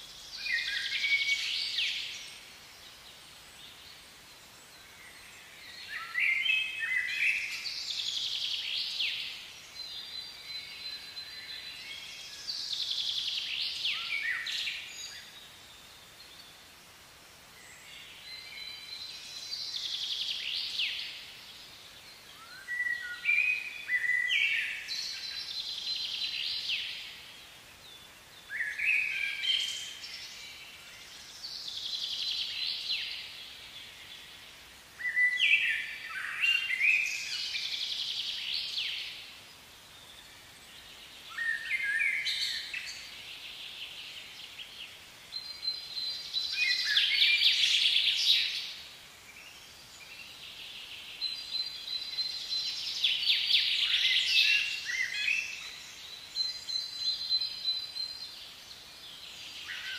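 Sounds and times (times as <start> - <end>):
faint steady hiss: 0.0 - 59.9
songbird singing: 0.0 - 59.9.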